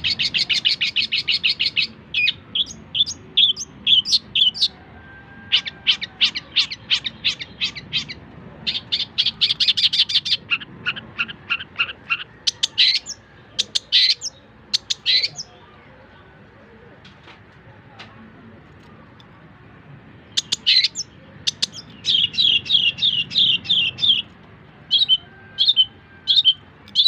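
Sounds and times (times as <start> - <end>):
bird chattering: 0.0 - 4.8, 5.5 - 15.6, 20.3 - 24.3.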